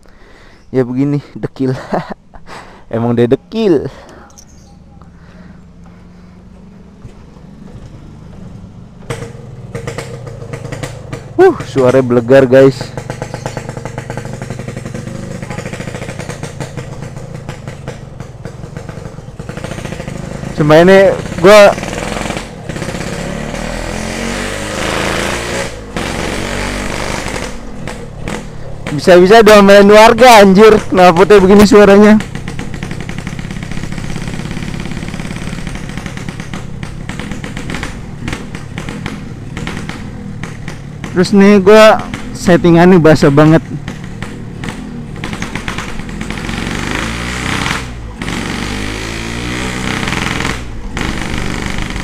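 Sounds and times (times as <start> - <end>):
two-stroke motorcycle engine idling: 3.8 - 24.1, 25.0 - 52.0.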